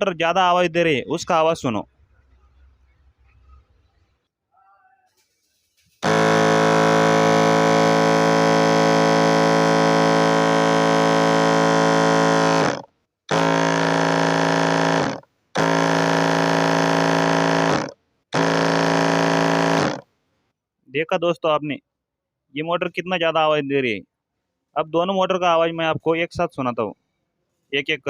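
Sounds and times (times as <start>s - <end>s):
sprayer pump motor running: 5.9s - 20.0s.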